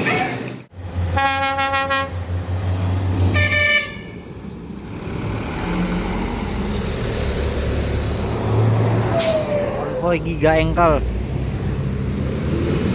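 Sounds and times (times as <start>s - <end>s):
truck engine humming: 0.7s - 12.9s
truck horn toots: 1.1s - 2.2s, 3.3s - 4.3s.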